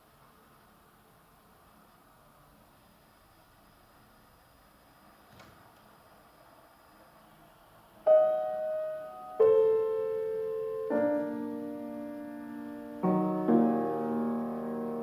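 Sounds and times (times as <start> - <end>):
piano chords: 8.0 - 15.0.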